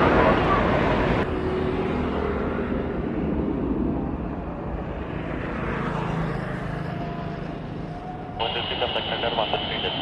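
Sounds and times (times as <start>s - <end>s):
jet engines rumbling: 8.2s - 10.0s.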